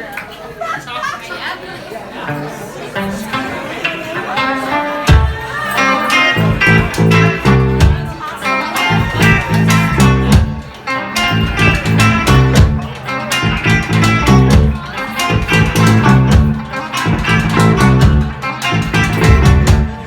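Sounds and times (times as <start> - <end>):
electric guitar: 3.0 - 20.0
bass guitar: 4.3 - 20.0
drums: 5.0 - 20.0.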